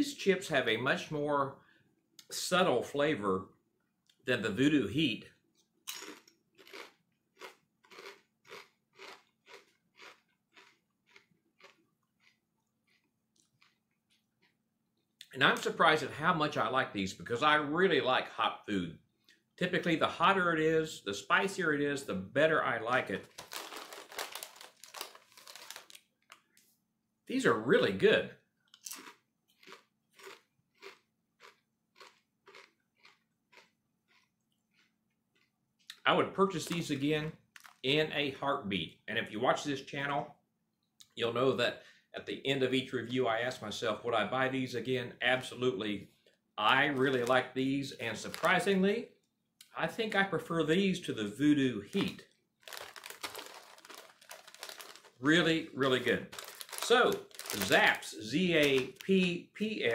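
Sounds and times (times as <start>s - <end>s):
potato chip being chewed: 5.9s - 14.6s, 23.2s - 26.5s, 28.7s - 36.0s, 36.6s - 37.8s, 46.9s - 47.4s, 51.9s - 55.2s, 55.8s - 59.3s.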